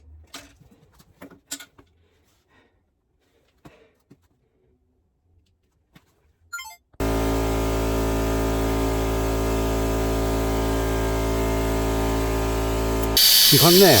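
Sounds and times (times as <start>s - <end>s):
electric air compressor humming: 7.0s - 14.0s.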